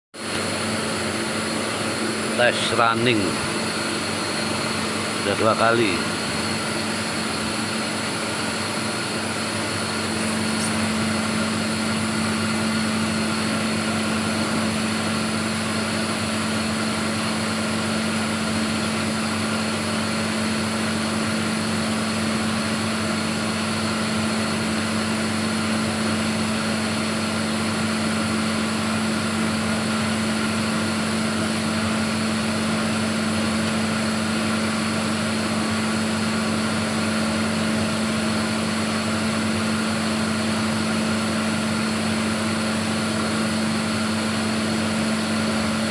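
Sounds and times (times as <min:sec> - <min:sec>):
ice machine humming: 0:00.2 - 0:45.9
even whirring noise: 0:00.3 - 0:15.0.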